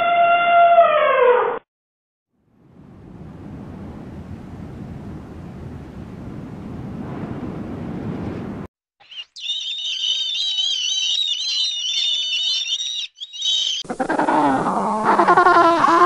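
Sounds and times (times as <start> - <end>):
rushing wind-like noise: 2.6 - 8.7
gulls calling: 9.0 - 16.0
low animal call: 13.8 - 16.0.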